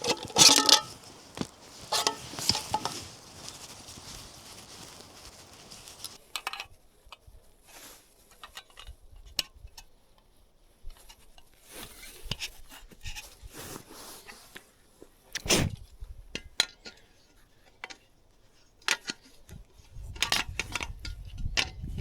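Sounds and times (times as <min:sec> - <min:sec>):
objects clicking and scraping: 0:00.0 - 0:06.2
soft rustle: 0:00.0 - 0:06.2.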